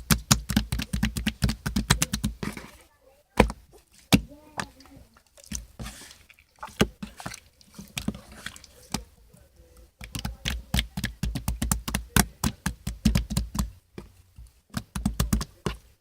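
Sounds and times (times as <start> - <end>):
slime squeezed making wet pops: 0.0 - 2.4.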